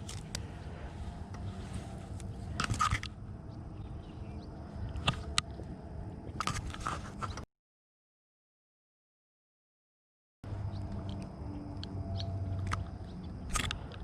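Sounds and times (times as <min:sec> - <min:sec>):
handling clicks and scrapes: 0:00.0 - 0:03.3, 0:06.3 - 0:07.4, 0:10.7 - 0:14.0
low steady rumble: 0:00.0 - 0:07.2, 0:10.4 - 0:14.0.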